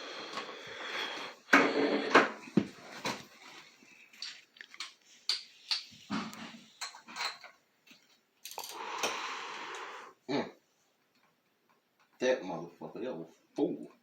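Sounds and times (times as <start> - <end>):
metal tools clinking and knocking: 6.8 - 7.6.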